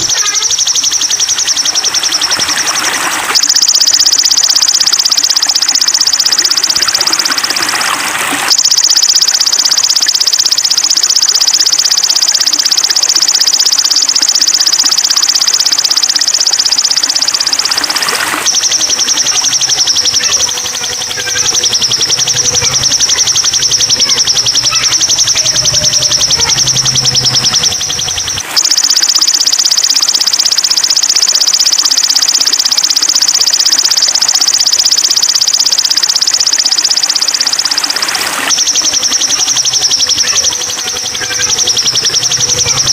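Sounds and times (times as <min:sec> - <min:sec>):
rapid high-pitched bird trill: 0:00.0 - 0:42.9.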